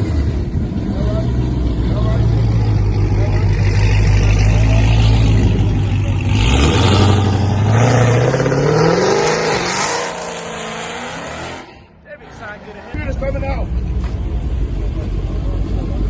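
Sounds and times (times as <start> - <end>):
car engine accelerating: 0.0 - 11.7.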